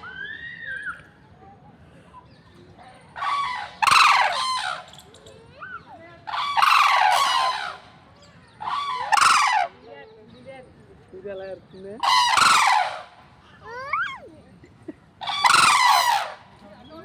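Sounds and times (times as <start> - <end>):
large bird calling harshly: 3.1 - 9.9, 12.0 - 14.2, 15.2 - 17.0.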